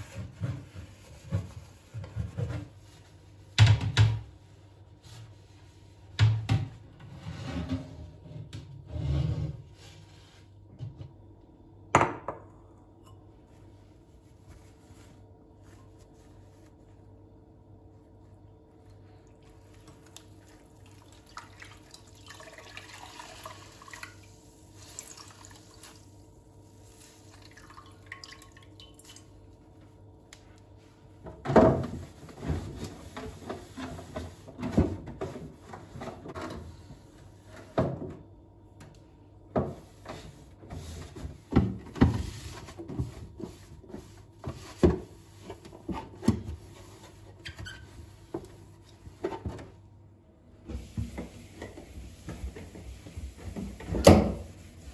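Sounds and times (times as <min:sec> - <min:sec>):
running water at a sink: 0:18.8 - 0:29.6, 0:50.7 - 0:54.9.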